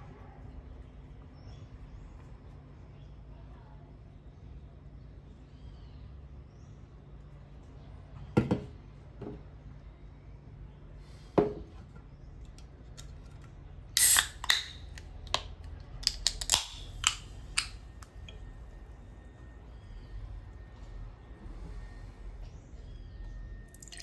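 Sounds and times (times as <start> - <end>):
crisp clicks: 14.1 - 18.1.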